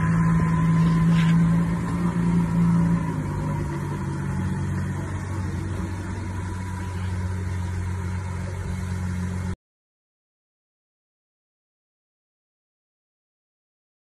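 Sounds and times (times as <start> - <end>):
supercar engine at low revs: 0.0 - 9.6.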